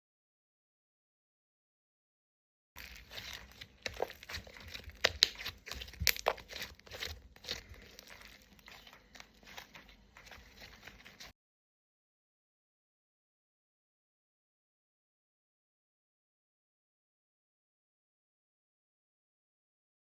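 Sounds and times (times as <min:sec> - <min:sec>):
slime sticky clicks and crackles: 0:02.8 - 0:11.3.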